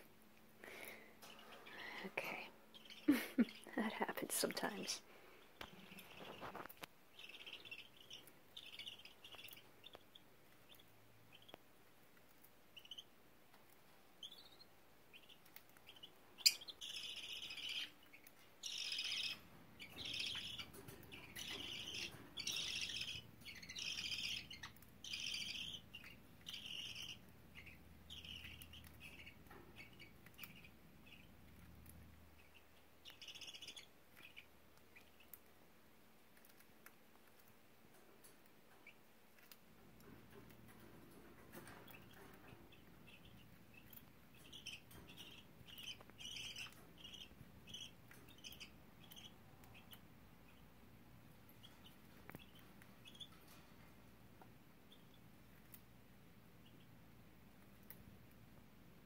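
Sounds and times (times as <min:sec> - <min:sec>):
budgerigars chirping: 0:02.7 - 0:03.7, 0:05.6 - 0:11.6, 0:12.7 - 0:13.1, 0:14.2 - 0:31.7, 0:32.3 - 0:35.4, 0:40.8 - 0:50.8, 0:51.5 - 0:53.6.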